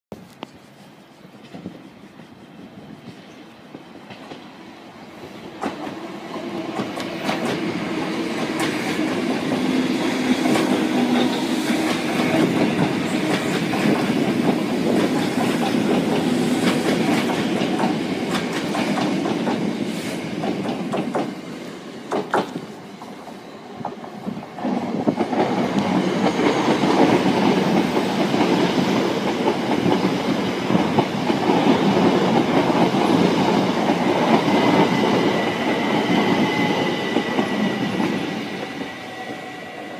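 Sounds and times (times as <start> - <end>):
electric trains passing: 0.3 - 39.9
wheels clicking over rail joints: 22.1 - 35.3.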